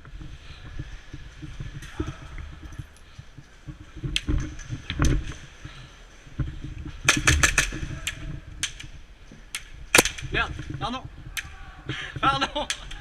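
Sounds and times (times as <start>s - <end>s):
airsoft gunfire cracks: 9.9s - 10.3s.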